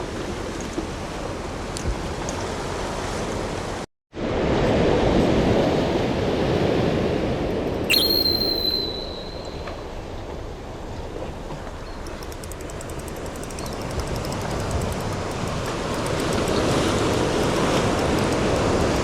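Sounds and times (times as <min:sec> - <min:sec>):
wind: 0:00.0 - 0:19.0
sharp click: 0:07.9 - 0:09.8
thin high tone: 0:07.9 - 0:09.9.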